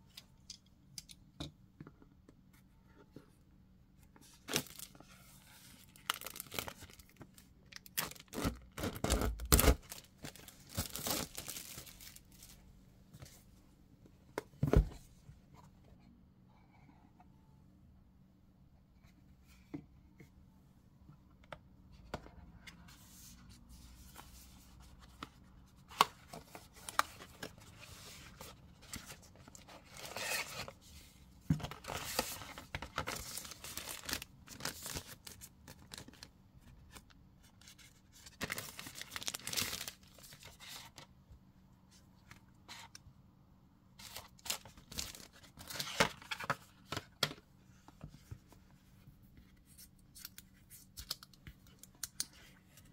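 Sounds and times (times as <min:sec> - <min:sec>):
plastic sheet rustling and crinkling: 0:08.0 - 0:12.6.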